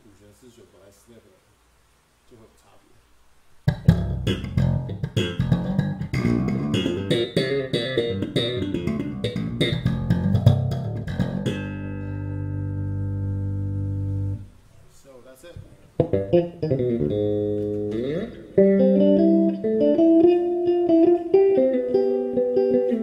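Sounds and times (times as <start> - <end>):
slap bass notes: 3.7 - 14.5, 15.9 - 23.0.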